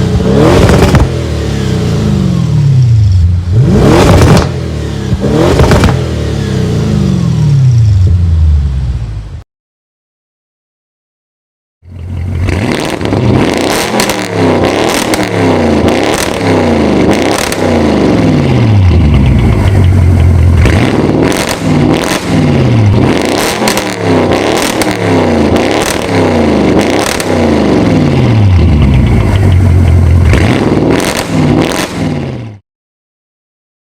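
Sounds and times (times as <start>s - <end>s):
car engine revving: 0.0s - 8.9s, 11.9s - 32.6s
exhaust cracks: 0.1s - 1.3s, 3.1s - 6.2s, 11.9s - 32.4s.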